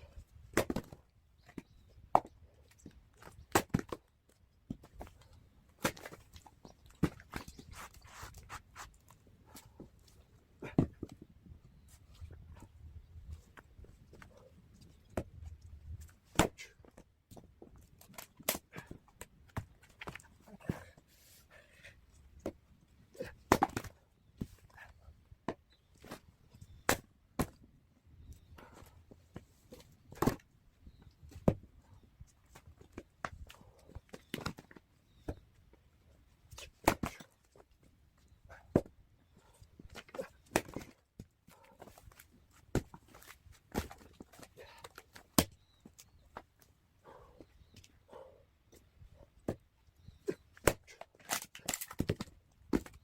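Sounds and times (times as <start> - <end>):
axe striking firewood: 16.3 - 16.8, 36.8 - 37.2, 50.6 - 53.0.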